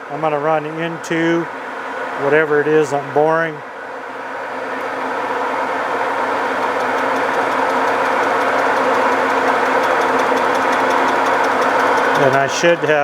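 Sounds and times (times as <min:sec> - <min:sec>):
metal lathe humming: 0:03.9 - 0:13.0
faint rapid ticking: 0:05.8 - 0:13.0.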